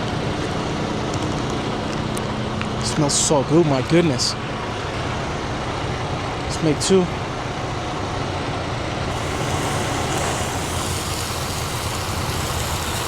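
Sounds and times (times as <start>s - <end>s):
truck engine idling: 4.0s - 13.0s
even hiss: 9.1s - 13.0s.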